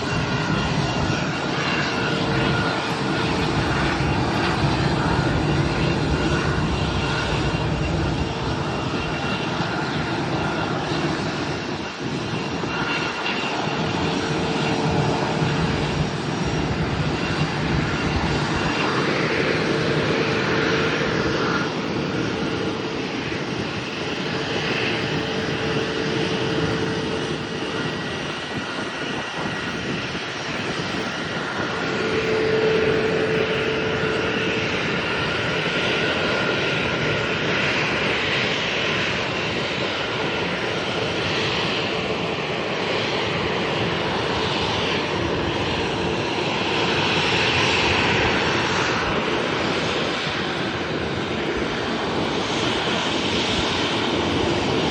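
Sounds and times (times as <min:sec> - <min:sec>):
airliner engines roaring: 0:00.0 - 0:54.9
whining tones: 0:31.6 - 0:35.5.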